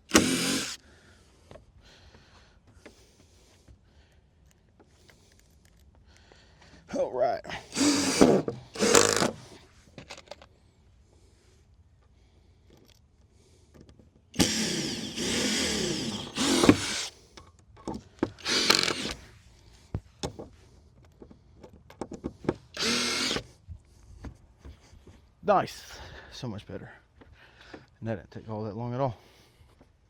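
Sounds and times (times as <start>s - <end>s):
power drill running: 0.0s - 0.8s, 7.6s - 9.6s, 14.4s - 17.2s, 18.3s - 19.3s, 22.7s - 23.5s.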